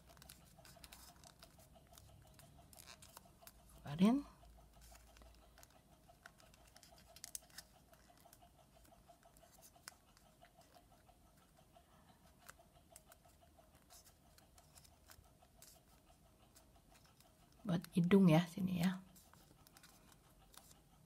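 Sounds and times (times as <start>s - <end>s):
paper crinkling and clicking: 0.0s - 3.6s, 4.8s - 10.7s, 19.2s - 20.8s.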